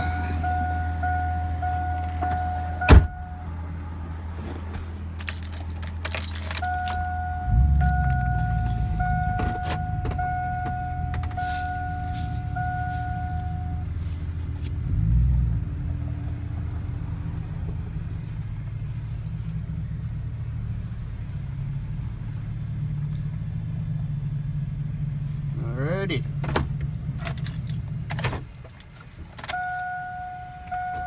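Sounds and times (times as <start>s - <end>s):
electronic beeps: 0.0s - 3.4s, 6.6s - 13.8s
pickup truck engine idling: 0.0s - 28.1s.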